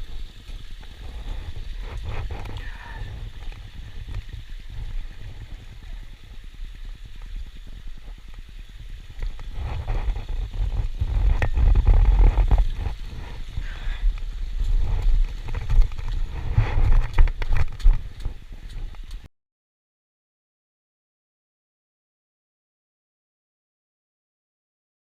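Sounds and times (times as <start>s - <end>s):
wind buffeting microphone: 0.0s - 19.3s.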